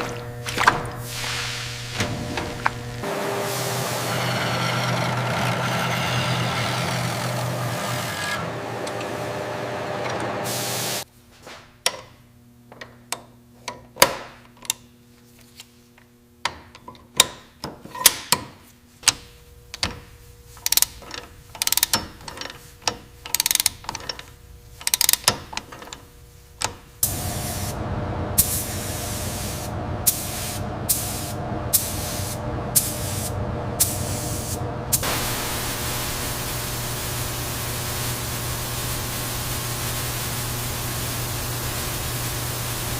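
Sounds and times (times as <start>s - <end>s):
machine humming: 0.0s - 11.0s, 27.0s - 42.9s
sharp metallic clicks and knocks: 20.6s - 26.8s
steady hiss: 28.4s - 42.9s.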